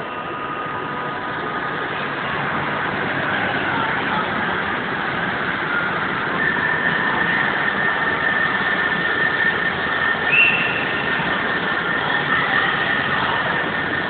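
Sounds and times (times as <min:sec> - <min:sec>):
high steady whine: 0:00.0 - 0:14.0
train machinery noise: 0:00.0 - 0:14.0
brief high squeal: 0:10.2 - 0:11.2.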